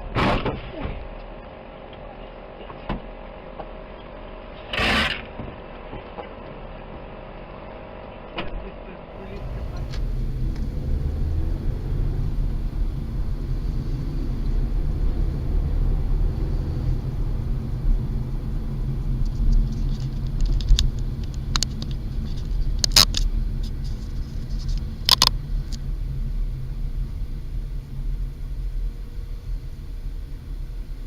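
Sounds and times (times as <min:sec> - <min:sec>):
car driving rumble: 0:00.0 - 0:31.0
sharp clicks and knocks: 0:19.2 - 0:25.8.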